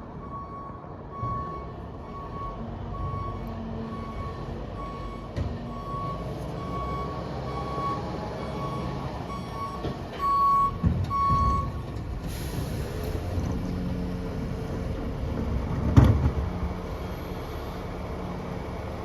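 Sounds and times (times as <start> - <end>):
reversing alarm beeping: 0.2 - 11.8.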